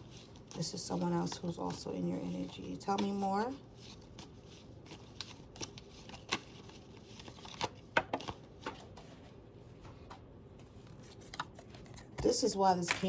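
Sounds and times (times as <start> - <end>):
cards being shuffled: 3.8 - 9.1.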